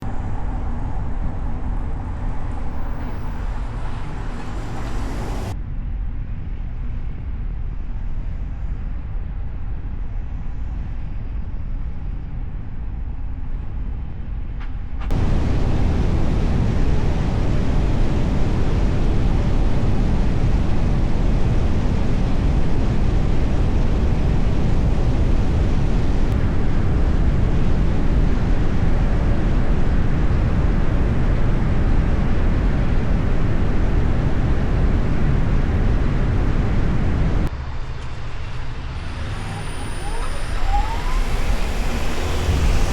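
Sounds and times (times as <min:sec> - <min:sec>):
car driving through city streets: 0:00.0 - 0:42.9.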